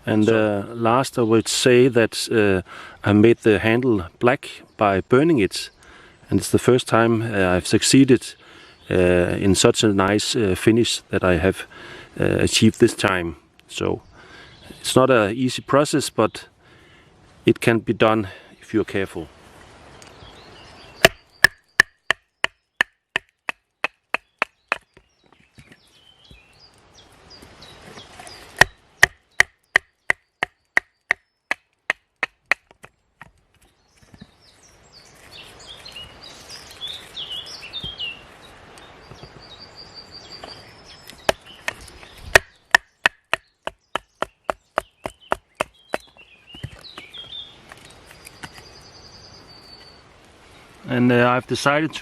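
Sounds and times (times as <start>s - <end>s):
small birds chirping: 2.7s - 10.5s, 11.2s - 19.2s, 19.9s - 52.0s
axe chopping wood: 21.0s - 25.0s, 28.5s - 33.3s, 41.2s - 47.1s.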